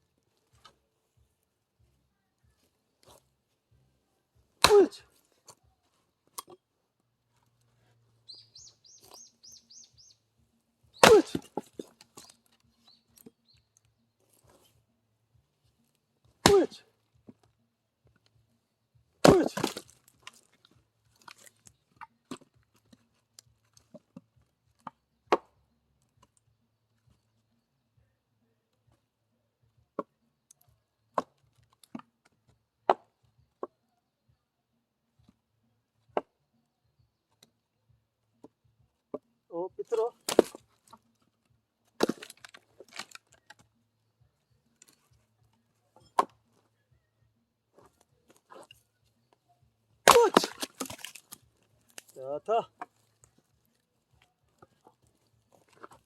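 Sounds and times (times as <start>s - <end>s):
axe striking firewood: 4.5s - 5.6s, 6.3s - 6.6s, 11.0s - 13.4s, 16.3s - 17.5s, 19.2s - 23.0s, 23.9s - 25.6s, 29.9s - 30.1s, 31.1s - 33.7s, 36.1s - 36.3s, 39.8s - 41.0s, 41.9s - 43.6s, 46.0s - 46.6s, 50.0s - 53.1s, 54.5s - 56.0s
wood clattering: 40.2s - 41.0s, 41.9s - 43.6s, 50.0s - 52.2s.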